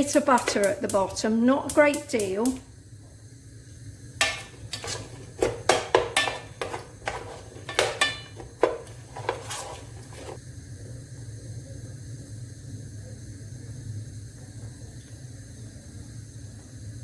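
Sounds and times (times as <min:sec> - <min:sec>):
utensil scraping metal pan: 0:04.2 - 0:10.4.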